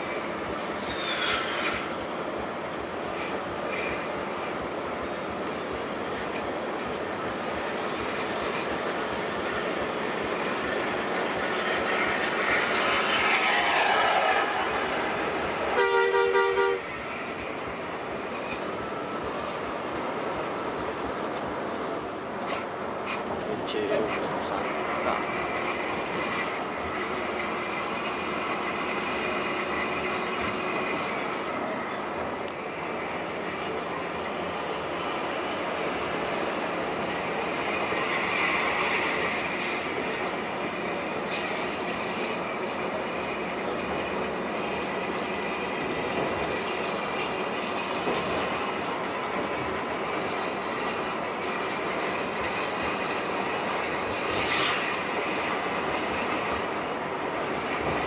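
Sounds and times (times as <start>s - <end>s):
bus road and engine noise: 0.0s - 58.0s
multi-tone air horn: 15.7s - 17.0s.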